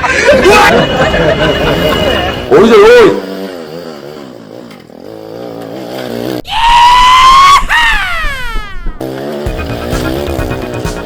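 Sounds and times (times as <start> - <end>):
comedy whistle sliding down: 6.5 - 8.9.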